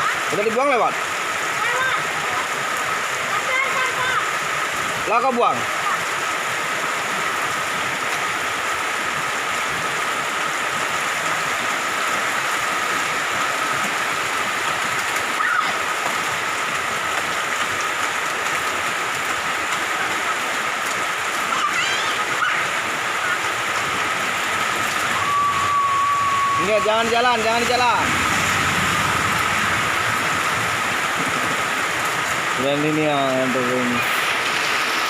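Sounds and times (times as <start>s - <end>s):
heavy rain and running water: 0.0s - 35.0s
faint high whine: 25.1s - 27.7s.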